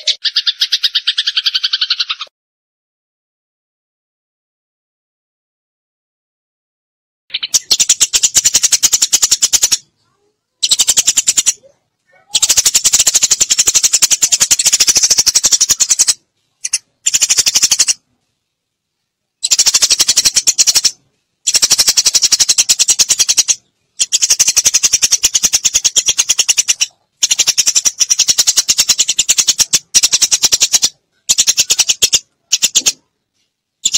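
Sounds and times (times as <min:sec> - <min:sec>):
sparrow chattering chirps: 0:00.0 - 0:02.3, 0:07.3 - 0:09.9, 0:10.6 - 0:18.0, 0:19.4 - 0:33.1.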